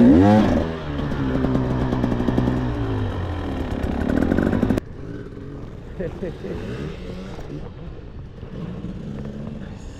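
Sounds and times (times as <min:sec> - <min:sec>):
dirt bike engine revving: 0:00.0 - 0:05.6.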